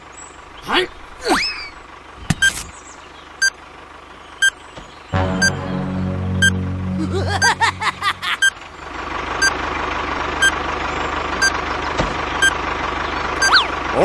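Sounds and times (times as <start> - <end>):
low held tone: 5.2 - 8.7
toy tractor engine: 9.2 - 14.0
toy timer beeping: 13.4 - 13.6.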